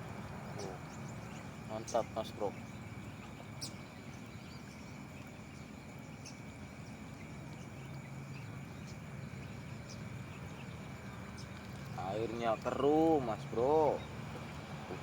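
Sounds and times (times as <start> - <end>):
faint ticks: 11.3 - 13.2.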